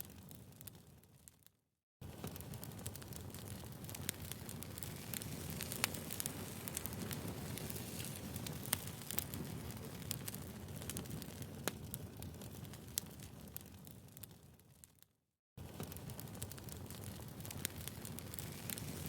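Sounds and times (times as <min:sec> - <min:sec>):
firewood crackling and popping: 0:00.0 - 0:19.0
low rumble of flames: 0:02.0 - 0:15.0, 0:15.6 - 0:19.0.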